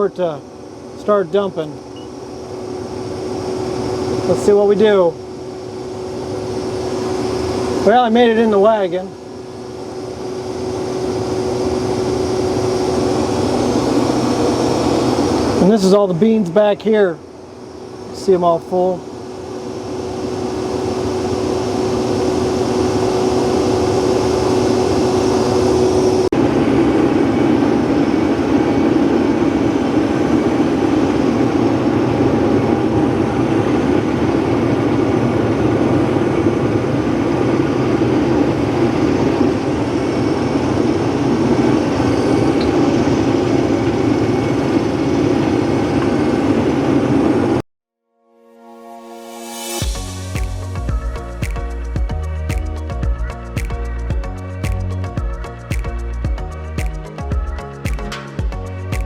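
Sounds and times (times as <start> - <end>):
combine harvester running: 0.0 - 47.6
held tone: 1.8 - 2.7.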